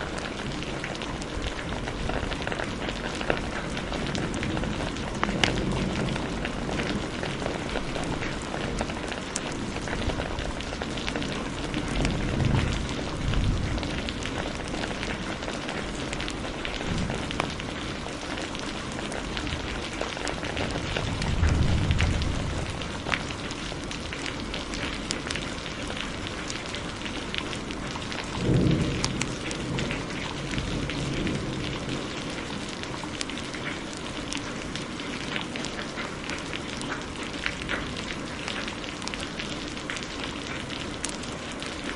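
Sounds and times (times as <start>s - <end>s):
low rolls of thunder: 0.0s - 18.2s, 19.0s - 25.6s, 27.7s - 33.5s
heavy rain: 0.0s - 41.9s
log fire crackling: 0.0s - 41.9s.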